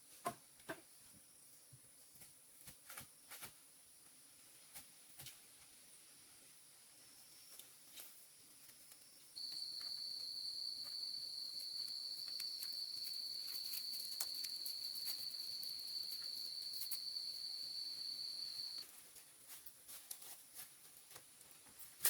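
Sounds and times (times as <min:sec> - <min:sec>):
faint higher insect tone: 0:09.0 - 0:18.8
insect high-pitched trill: 0:09.4 - 0:18.8.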